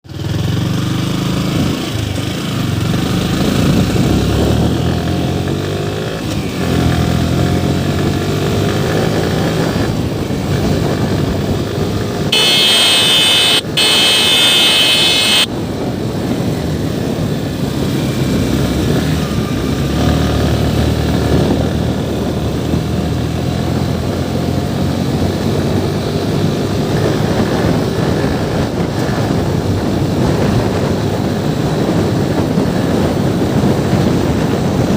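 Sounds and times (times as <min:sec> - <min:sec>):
motorcycle engine running: 0:00.1 - 0:34.9
loud high-pitched tone: 0:12.3 - 0:15.5.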